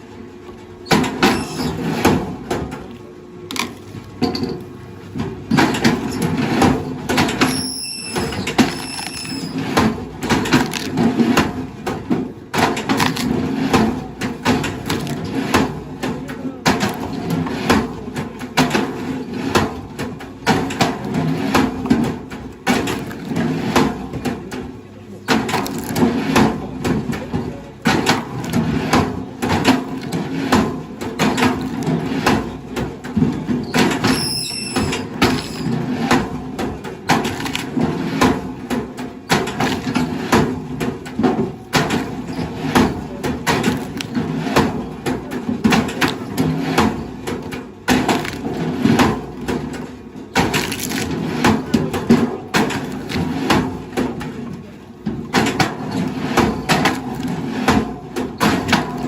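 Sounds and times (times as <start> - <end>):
short wavering squeal: 1.3 - 1.8, 7.5 - 9.6, 34.1 - 35.7
wood cracking and splintering: 25.4 - 26.1, 50.4 - 51.6.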